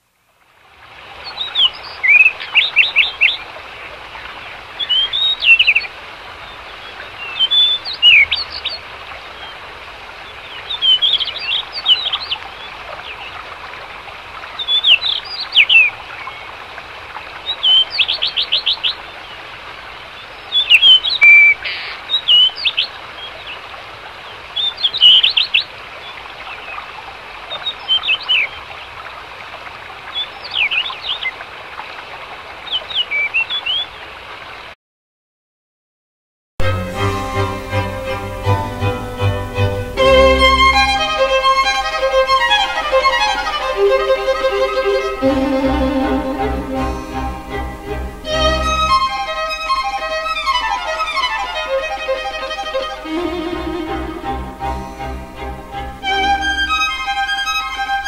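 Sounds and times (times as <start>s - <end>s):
bird chirping: 6.8s - 8.8s
background hiss: 36.6s - 58.0s.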